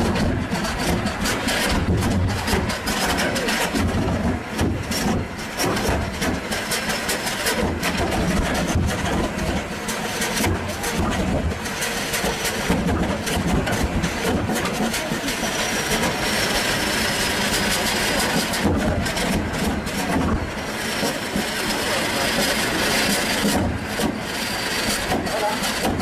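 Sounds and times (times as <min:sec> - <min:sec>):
diesel generator engine running: 0:00.0 - 0:26.0.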